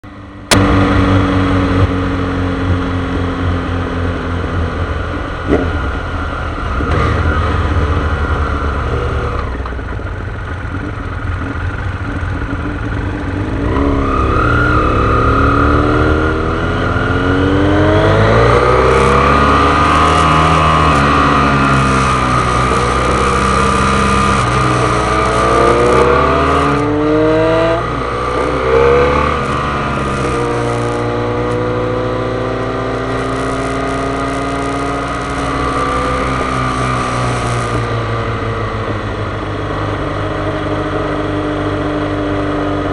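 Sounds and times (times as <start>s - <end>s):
vehicle engine revving: 0.0s - 9.9s, 10.5s - 42.9s
steady high whine: 17.8s - 41.8s.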